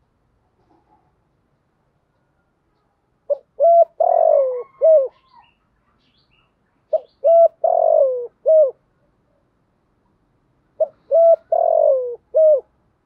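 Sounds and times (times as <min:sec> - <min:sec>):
dove cooing: 0:03.3 - 0:05.5, 0:06.9 - 0:08.8, 0:10.8 - 0:12.7.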